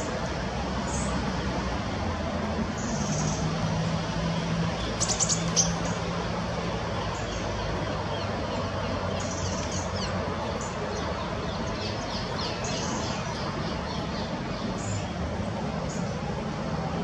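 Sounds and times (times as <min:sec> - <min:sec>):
small birds chirping: 0:02.7 - 0:03.7, 0:04.4 - 0:16.3.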